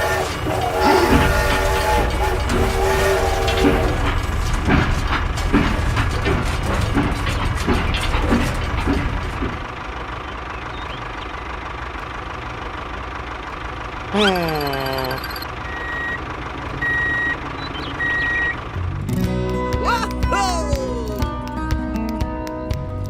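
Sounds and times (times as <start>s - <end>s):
machine running: 0.0s - 11.1s, 14.1s - 18.9s
short high beeps: 14.2s - 16.2s.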